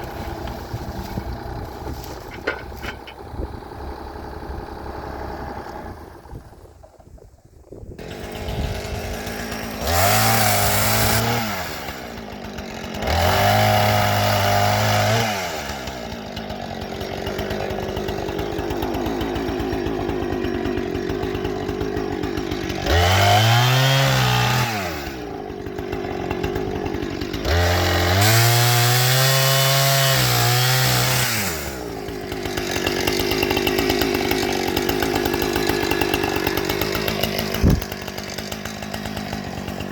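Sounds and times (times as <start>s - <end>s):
engine revving: 8.0s - 16.1s, 21.0s - 25.2s, 26.5s - 39.4s.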